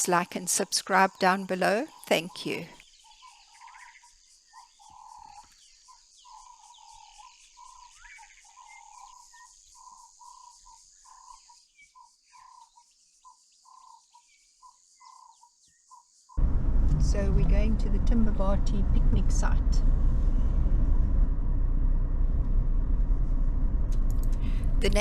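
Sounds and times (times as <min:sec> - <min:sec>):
faint bird chirps: 0:00.2 - 0:16.4.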